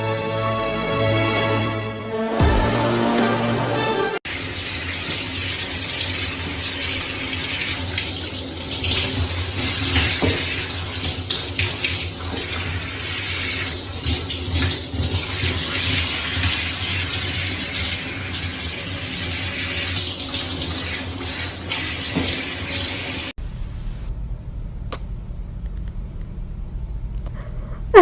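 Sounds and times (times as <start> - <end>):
water running: 4.2 - 23.4
low steady hum: 23.4 - 28.0.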